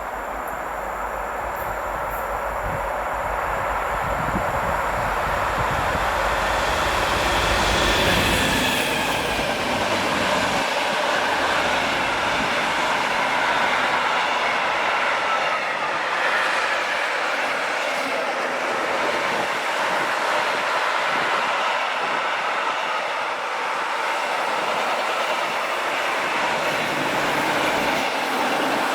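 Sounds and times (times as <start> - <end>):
train wheels rushing on rail: 0.0 - 28.9.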